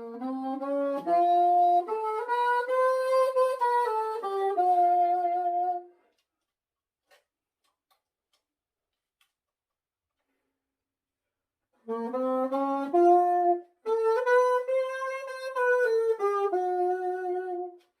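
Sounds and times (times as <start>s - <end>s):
muted saxophone held notes: 0.0s - 5.9s, 11.8s - 18.0s.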